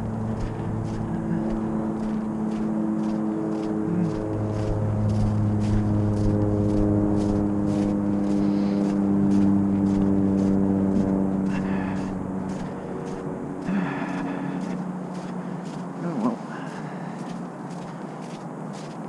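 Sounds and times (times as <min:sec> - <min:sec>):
road noise: 0:00.0 - 0:19.0
vehicle drivetrain hum: 0:00.0 - 0:19.0.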